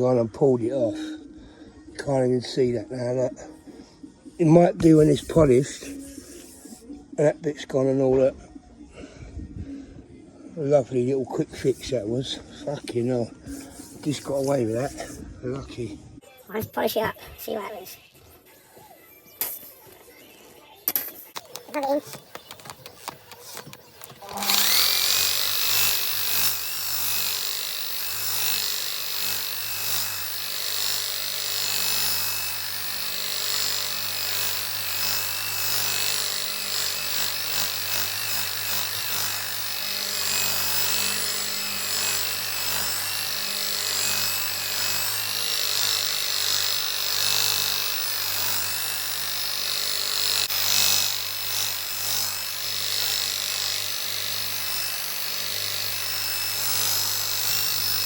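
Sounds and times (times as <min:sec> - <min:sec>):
pad rubbing on resin: 0:04.9 - 0:06.8, 0:13.5 - 0:15.2
electric polisher motor hum: 0:22.4 - 0:58.0.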